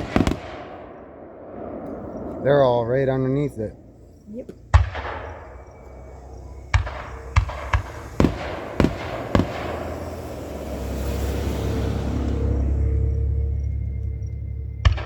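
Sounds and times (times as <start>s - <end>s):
fireworks bangs: 0.0s - 12.8s
fireworks hiss: 2.1s - 12.9s.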